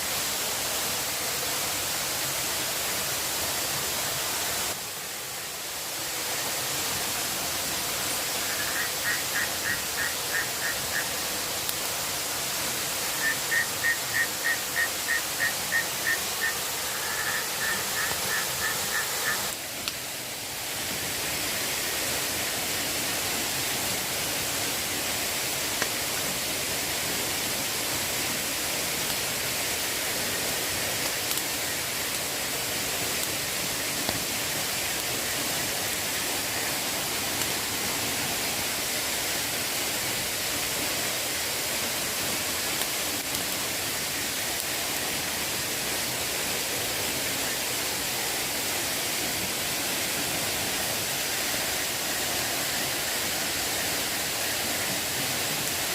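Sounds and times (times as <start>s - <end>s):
water hissing: 3.1s - 24.0s.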